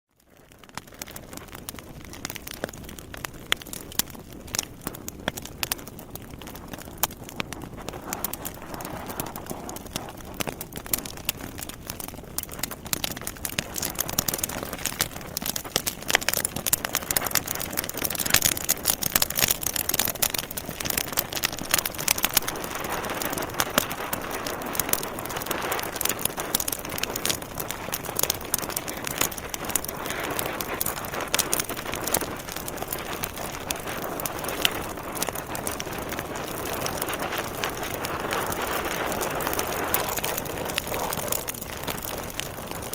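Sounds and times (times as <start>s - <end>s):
logs crackling and popping: 0.1s - 42.9s
hiss of flame: 20.9s - 42.9s.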